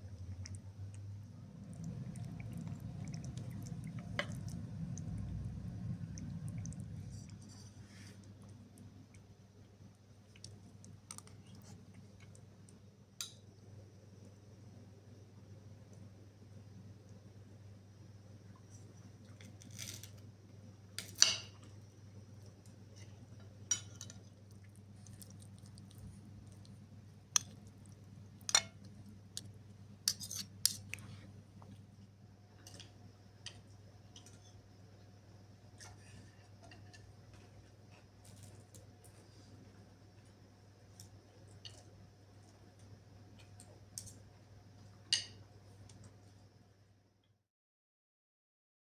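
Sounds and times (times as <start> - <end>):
steady low hum: 0.0 - 19.4, 20.1 - 47.2.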